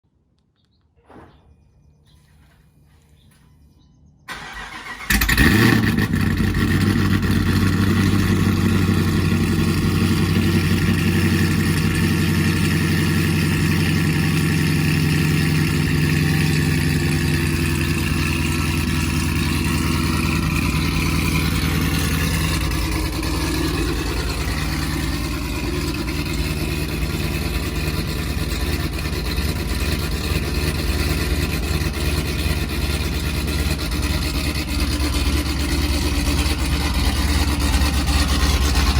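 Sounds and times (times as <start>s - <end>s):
engine starting and idling: 4.2s - 38.9s
starter motor cranking: 4.3s - 7.4s.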